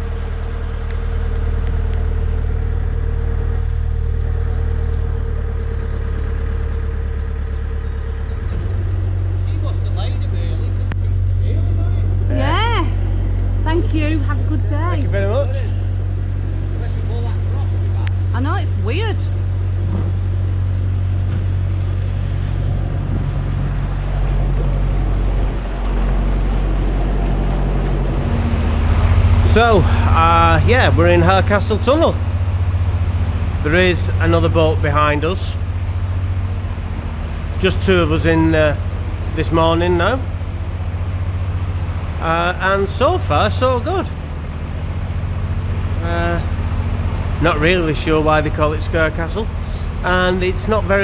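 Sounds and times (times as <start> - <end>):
diesel boat engine humming: 0.0 - 51.0.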